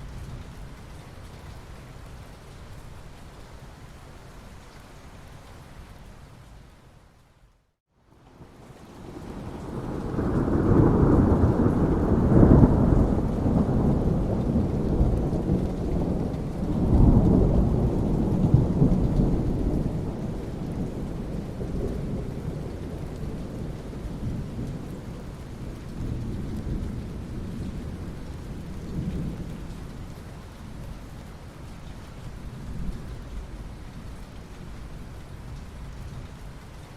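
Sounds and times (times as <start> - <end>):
steady rain: 0.0 - 36.9
rolling thunder: 8.4 - 29.8.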